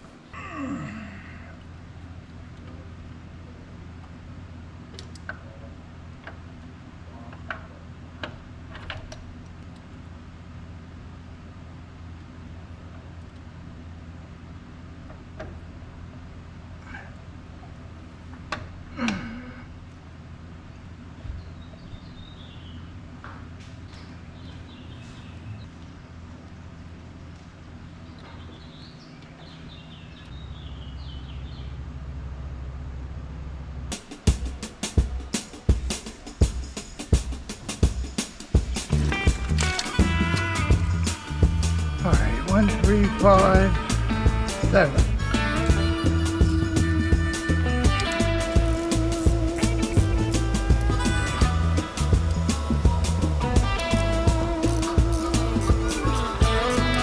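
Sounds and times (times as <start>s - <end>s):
birds chirping: 23.8s - 26.2s, 27.8s - 31.8s, 37.8s - 57.0s
low hum: 38.9s - 57.0s.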